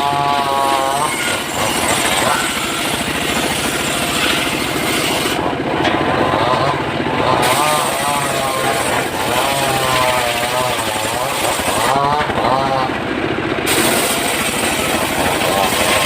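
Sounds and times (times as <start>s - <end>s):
wavering high whine: 0.0s - 9.4s
saw engine running: 0.0s - 16.0s.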